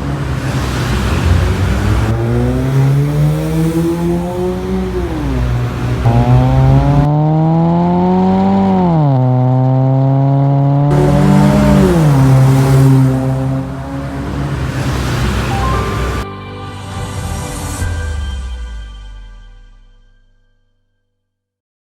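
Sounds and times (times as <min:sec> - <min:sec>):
car engine revving: 0:00.0 - 0:16.2.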